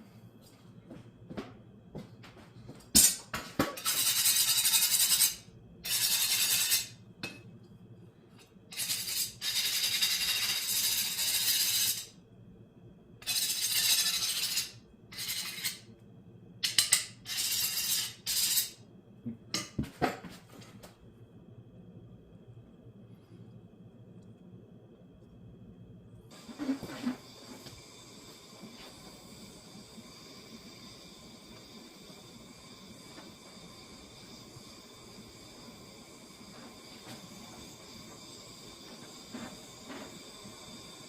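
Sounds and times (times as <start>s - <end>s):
scraping strokes: 13.2s - 15.9s.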